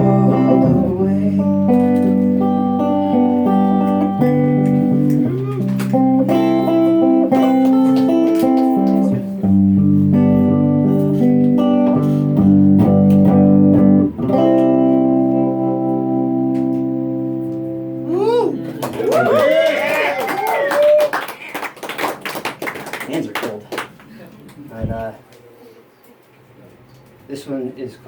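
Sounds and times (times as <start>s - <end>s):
electric guitar chords: 0.0s - 18.9s.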